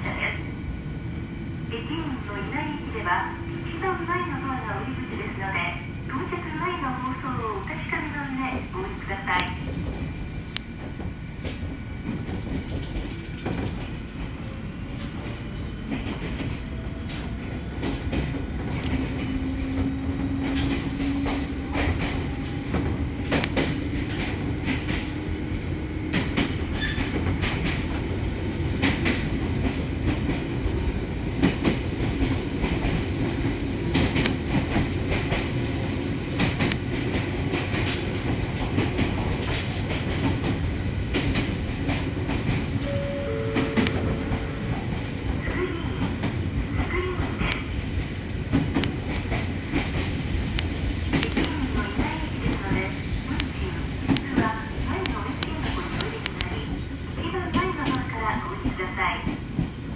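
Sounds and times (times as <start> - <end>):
train wheels rumbling: 0.0 - 59.9.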